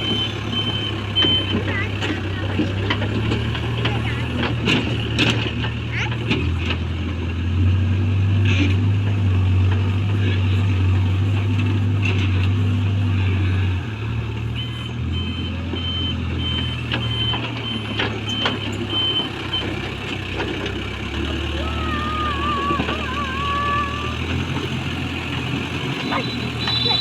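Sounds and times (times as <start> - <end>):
reversing alarm beeping: 0.0 - 1.6, 14.6 - 19.8, 25.8 - 27.0
diesel engine running: 0.0 - 27.0.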